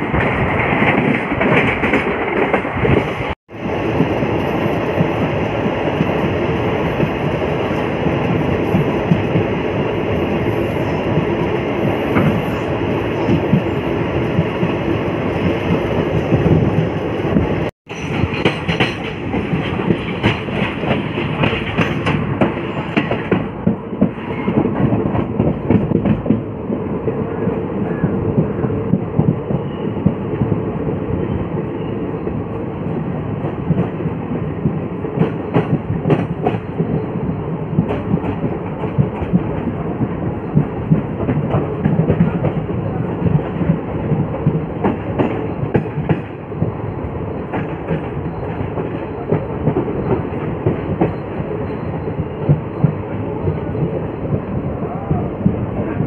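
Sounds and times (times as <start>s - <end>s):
train wheels rumbling on rails: 0.0s - 56.0s
wheels clacking over rail joints: 17.9s - 26.5s.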